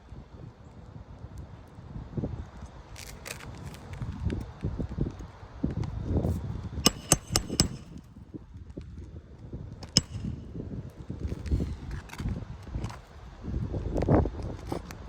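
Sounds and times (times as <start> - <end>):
metal hammer clanging: 6.9 - 8.0, 10.0 - 10.5.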